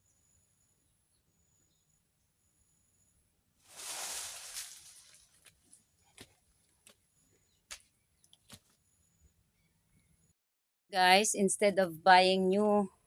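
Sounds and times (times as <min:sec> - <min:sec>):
rustling: 0:03.7 - 0:05.5.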